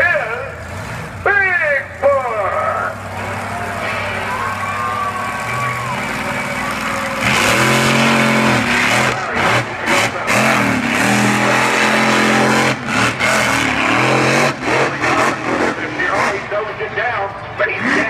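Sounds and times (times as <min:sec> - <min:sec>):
truck engine revving hard: 0:00.0 - 0:16.9, 0:17.6 - 0:18.0.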